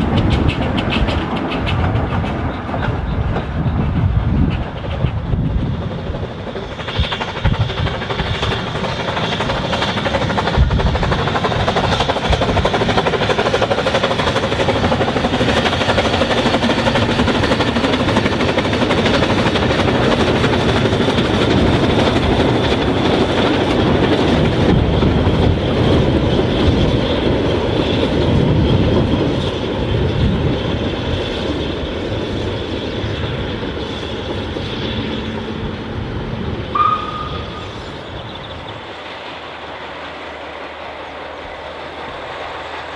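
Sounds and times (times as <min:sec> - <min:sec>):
train wheels rumbling: 0:00.0 - 0:42.9
brief high tone: 0:36.7 - 0:37.7.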